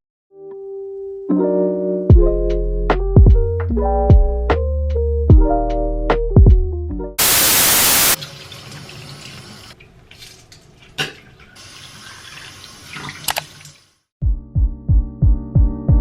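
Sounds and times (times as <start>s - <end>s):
tap water running: 7.2s - 14.0s.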